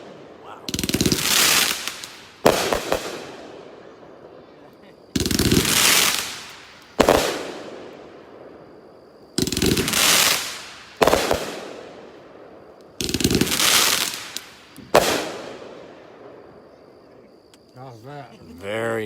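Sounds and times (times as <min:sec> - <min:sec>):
firework cake burst: 0:00.0 - 0:12.3, 0:12.9 - 0:16.2
firework bang: 0:09.4 - 0:12.1, 0:13.0 - 0:15.9.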